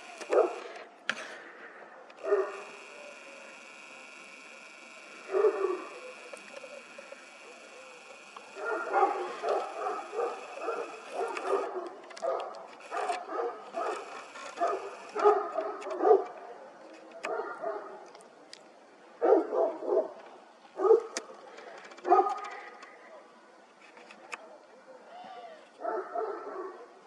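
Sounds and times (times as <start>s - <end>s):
dog barking: 0.2s - 0.7s, 2.0s - 2.8s, 5.2s - 6.2s, 7.7s - 18.0s, 19.2s - 20.2s, 20.8s - 21.2s, 22.0s - 22.6s, 25.8s - 27.0s.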